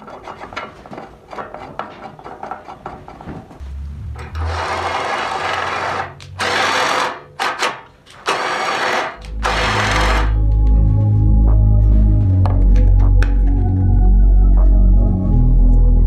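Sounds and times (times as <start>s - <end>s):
electric power tool running: 4.5s - 7.6s, 8.2s - 10.4s.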